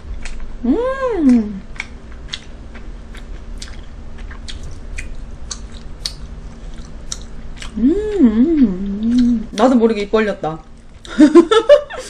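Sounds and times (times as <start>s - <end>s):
person humming: 0.6s - 1.6s, 7.7s - 9.5s
wet chewing mouth sounds: 1.3s - 9.8s.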